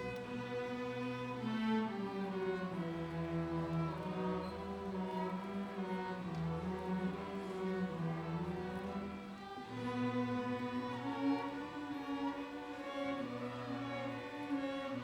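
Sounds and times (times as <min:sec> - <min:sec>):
violin and cello playing: 0:00.0 - 0:15.0.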